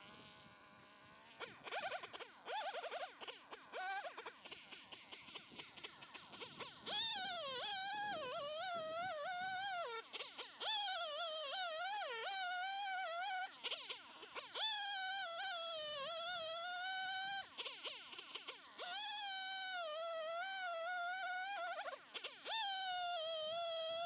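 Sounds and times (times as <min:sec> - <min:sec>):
chainsaw cutting logs: 0:00.0 - 0:18.6.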